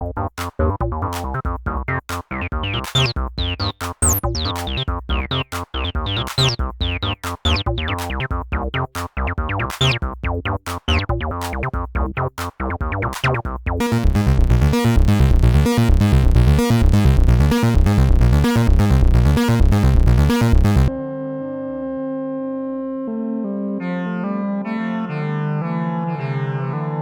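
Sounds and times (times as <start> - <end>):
squelchy acid synth bassline: 0.0 - 20.9.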